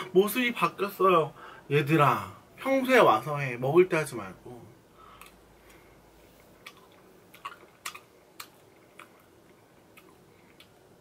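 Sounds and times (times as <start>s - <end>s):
wet mouth clicks and smacks: 6.6s - 10.8s.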